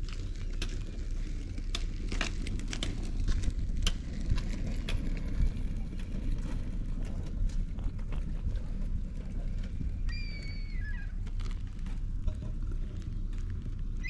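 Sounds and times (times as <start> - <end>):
steady low rumble: 0.0 - 14.0
bird call: 10.1 - 11.1.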